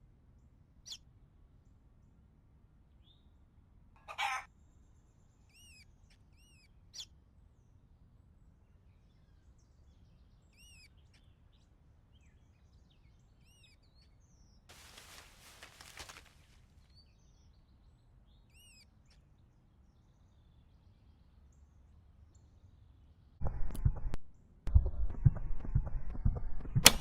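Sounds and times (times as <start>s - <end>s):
small bird chirping: 5.4s - 7.1s.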